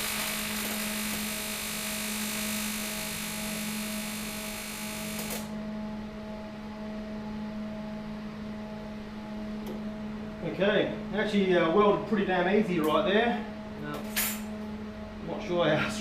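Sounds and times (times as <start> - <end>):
welding arc hissing buzz: 0.0 - 5.6
welding machine hum: 0.0 - 5.6.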